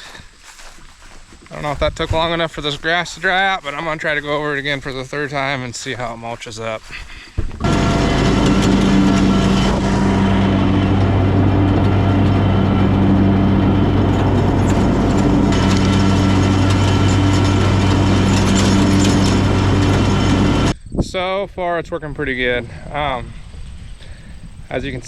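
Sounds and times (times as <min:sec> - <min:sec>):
mower engine hum: 0:06.9 - 0:20.8
mower deck blades whirring: 0:07.4 - 0:20.8.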